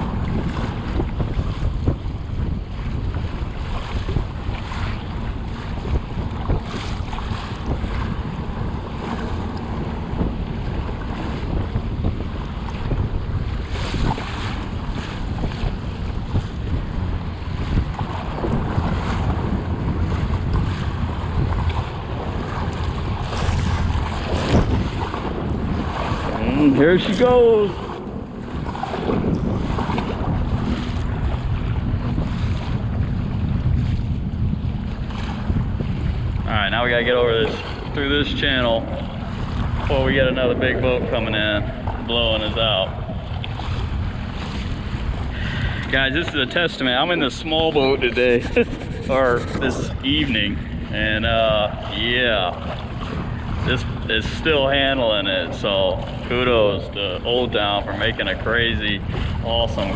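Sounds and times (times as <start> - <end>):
water slapping kayak hull: 0.0 - 59.9
wind buffeting microphone: 0.0 - 59.9.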